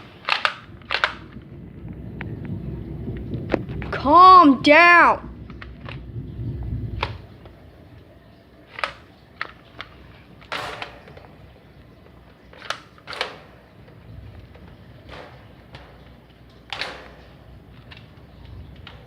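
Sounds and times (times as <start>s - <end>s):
sharp clicks and knocks: 0.0s - 1.5s, 8.7s - 19.0s
steady low hiss: 0.0s - 19.0s.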